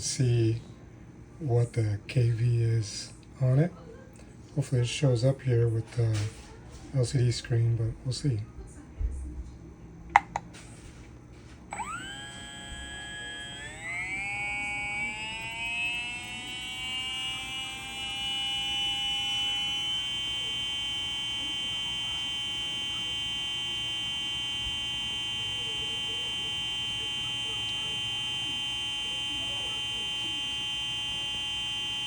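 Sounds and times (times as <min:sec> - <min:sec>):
electric motor whine: 0:11.7 - 0:32.0.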